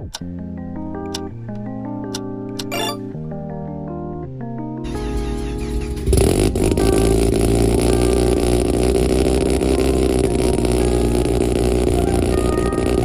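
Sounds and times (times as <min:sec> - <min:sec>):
car engine starting and idling: 0:04.9 - 0:13.0.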